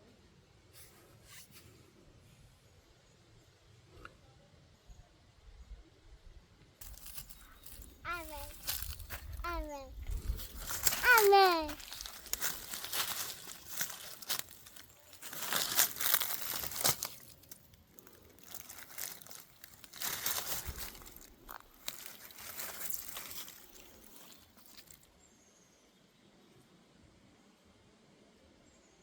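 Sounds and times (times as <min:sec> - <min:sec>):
dry crinkling and crackling: 0:06.8 - 0:25.1.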